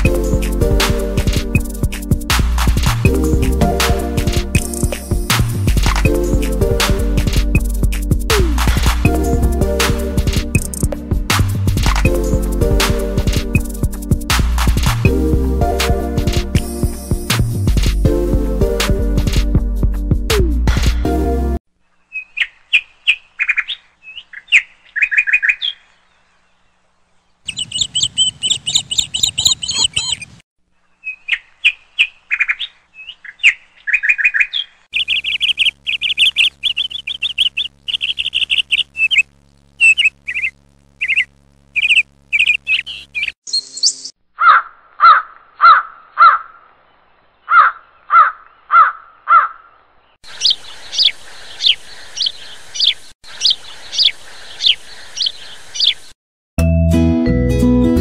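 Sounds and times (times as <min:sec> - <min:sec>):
birds chirping and calling: 0:22.0 - 0:26.7, 0:27.4 - 0:56.2.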